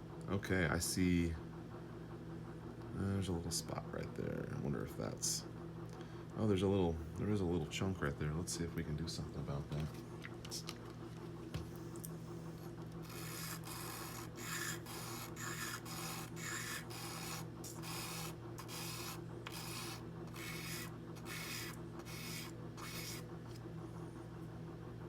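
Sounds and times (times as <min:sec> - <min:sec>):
tweezers scraping on sandpaper: 0:13.1 - 0:23.2.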